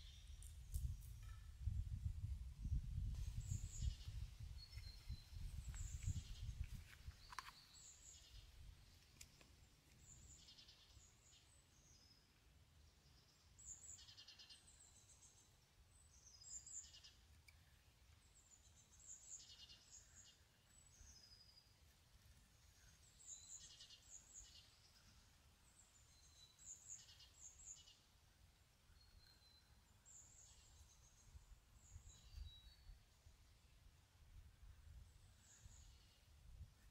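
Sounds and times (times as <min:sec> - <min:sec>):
songbird singing with trills: 0:00.0 - 0:08.5, 0:22.7 - 0:25.1, 0:28.9 - 0:33.1.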